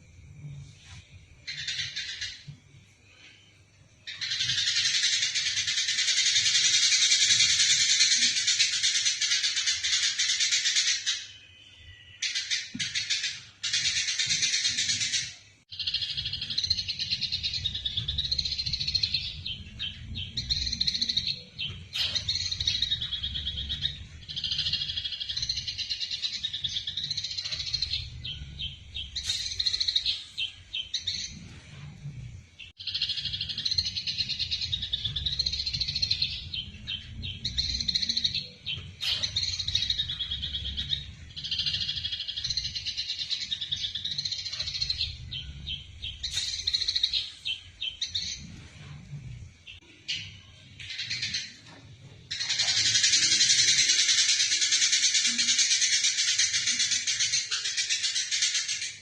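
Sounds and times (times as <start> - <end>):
sparrows chirping: 0.2 - 59.0
steady low hum: 14.6 - 53.6.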